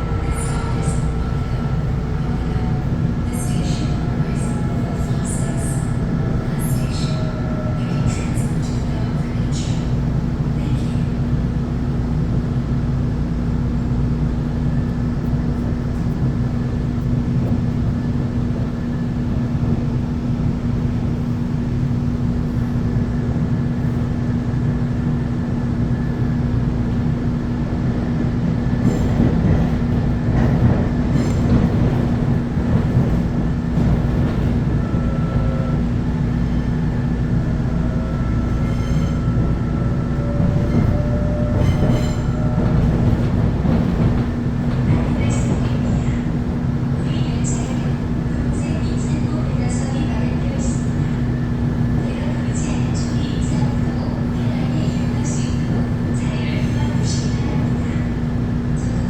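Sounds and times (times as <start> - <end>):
electric train rumbling on track: 0.0 - 59.0.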